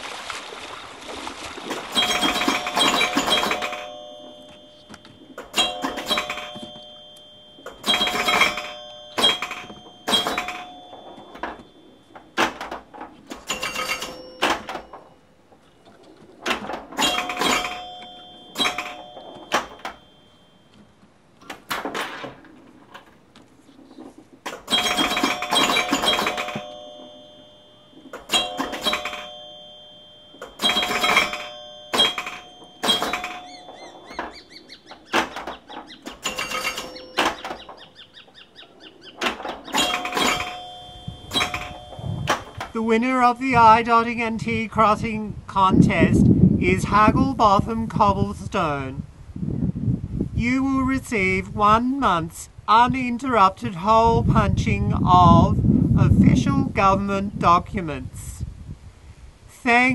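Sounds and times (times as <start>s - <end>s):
sharp clanks with bell-like ring: 1.9s - 15.2s, 16.9s - 20.8s, 24.7s - 38.2s, 39.4s - 42.8s.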